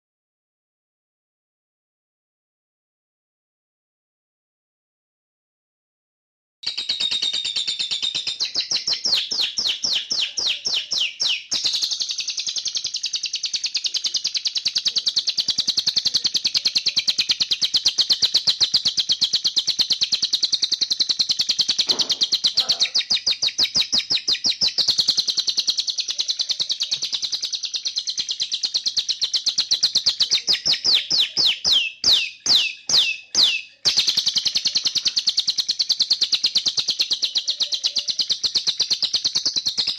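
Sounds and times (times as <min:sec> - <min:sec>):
canary-like bird trilling: 0:06.7 - 0:39.0.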